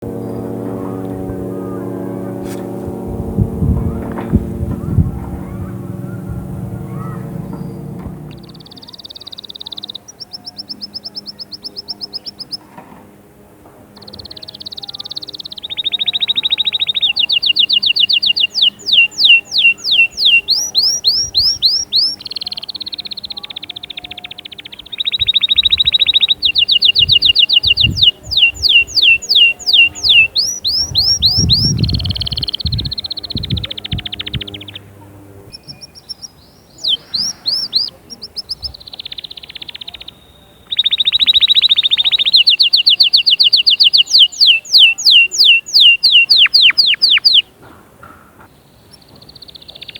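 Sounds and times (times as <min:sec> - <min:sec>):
faint low thumps: 0:00.0 - 0:08.8
canary singing trills: 0:00.0 - 0:13.2, 0:13.9 - 0:47.7, 0:48.4 - 0:49.9.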